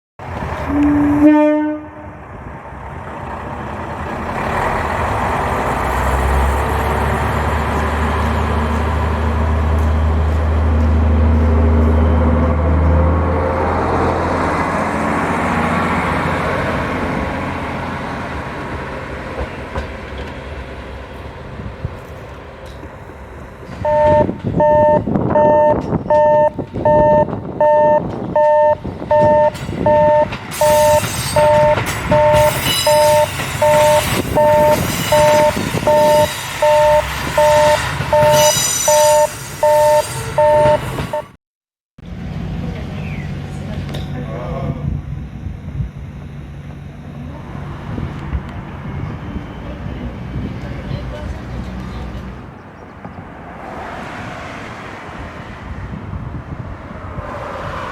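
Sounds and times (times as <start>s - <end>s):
train passing rumble: 0.2s - 41.2s, 42.0s - 57.9s
train horn toot: 0.6s - 2.2s, 29.2s - 40.9s
level crossing alarm dings: 23.8s - 41.4s.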